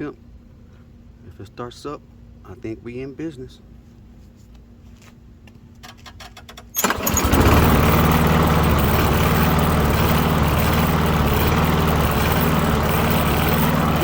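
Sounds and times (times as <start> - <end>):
lawn mower engine starting: 6.7 - 14.0.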